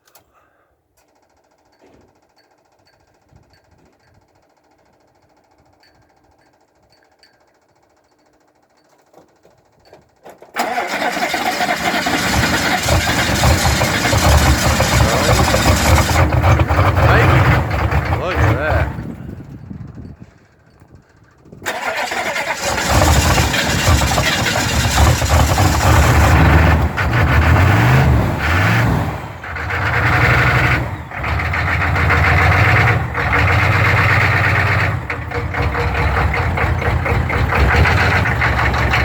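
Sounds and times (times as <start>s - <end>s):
diesel engine revving: 10.6s - 19.7s, 21.6s - 39.0s.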